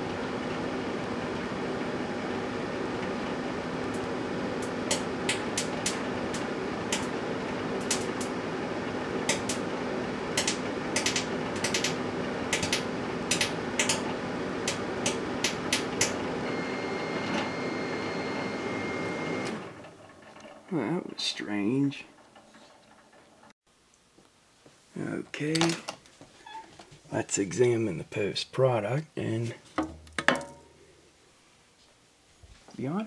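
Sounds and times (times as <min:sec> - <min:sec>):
microwave oven hum: 0:00.0 - 0:23.5.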